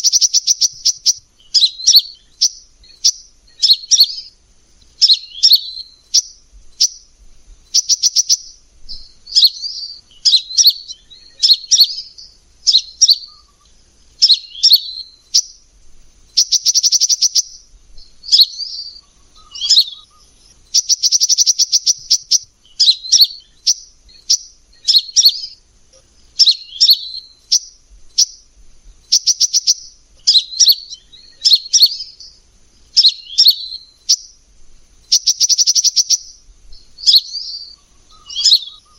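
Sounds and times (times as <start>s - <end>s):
bird rattling trills: 0.0s - 4.3s, 16.2s - 25.6s, 32.9s - 38.9s
bird chirping phrases: 0.0s - 38.9s.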